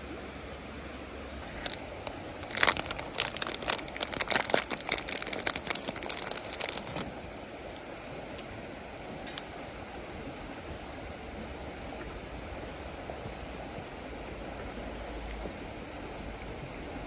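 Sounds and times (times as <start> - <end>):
steady outdoor hiss: 0.0 - 17.0
crackling and crinkling: 1.4 - 8.5, 9.1 - 9.6.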